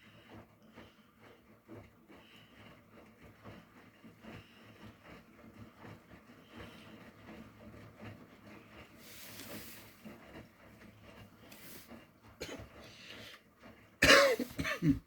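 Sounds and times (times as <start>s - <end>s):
tumble dryer and washing machine hum: 0.0s - 15.0s
person coughing: 12.4s - 12.7s, 14.0s - 15.0s.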